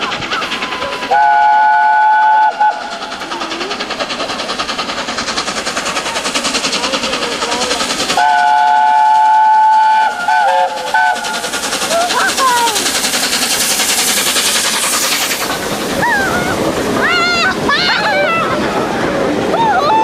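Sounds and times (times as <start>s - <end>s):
train rail clatter: 0.0s - 20.0s
steam locomotive whistle: 0.6s - 3.0s, 8.2s - 11.5s.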